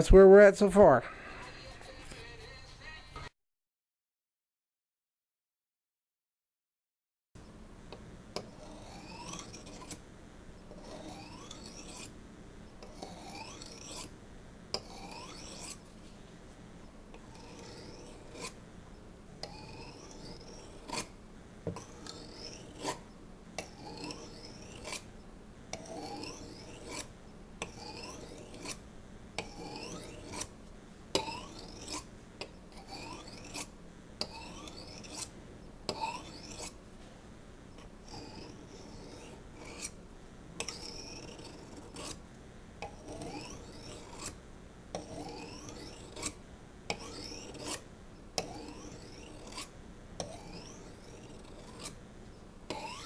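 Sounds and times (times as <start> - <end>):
knife sharpening scrapes: 8.4 - 10.0, 10.7 - 12.1, 12.8 - 14.1, 14.8 - 15.8, 17.1 - 18.6, 19.4 - 21.1, 21.7 - 23.0, 23.6 - 25.1, 25.7 - 28.8, 29.4 - 30.5, 31.2 - 35.3, 35.9 - 36.8, 37.8 - 40.0, 40.6 - 42.2, 42.8 - 44.4, 45.0 - 47.8, 48.4 - 52.0, 52.7 - 53.0.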